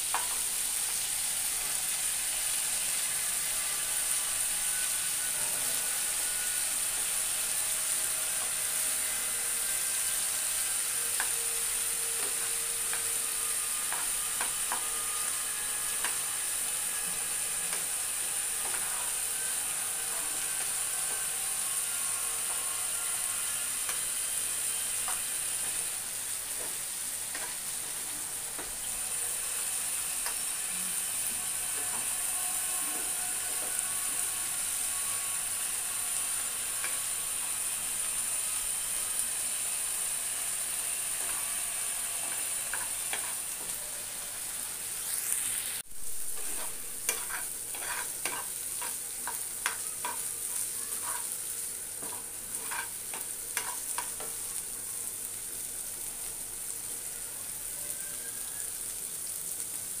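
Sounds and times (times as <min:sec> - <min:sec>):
fish sizzling in oil: 0:00.0 - 1:00.0
spatula scraping and knocking pan: 0:12.2 - 0:18.0, 0:18.6 - 0:19.5, 0:22.4 - 0:28.9, 0:42.2 - 0:43.8, 0:46.2 - 0:51.4, 0:52.0 - 0:54.4.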